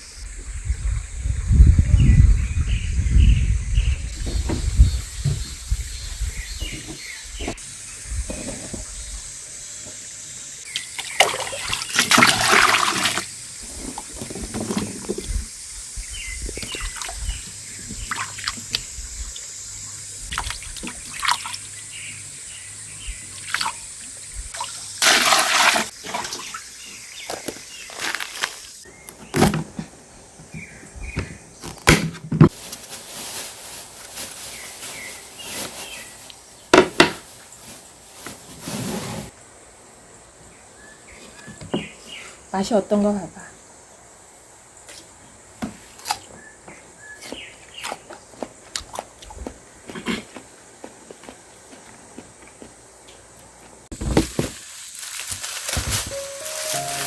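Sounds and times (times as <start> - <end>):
water pouring and splashing: 10.7 - 15.6, 16.4 - 21.8, 23.3 - 28.8, 53.9 - 57.0.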